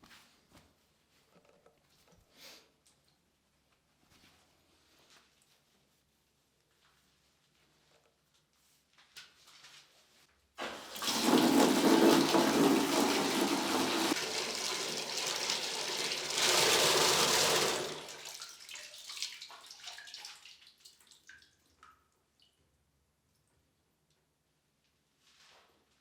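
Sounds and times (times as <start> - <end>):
water gushing from plumbing: 10.6 - 20.5
water trickling and dripping: 18.1 - 22.7.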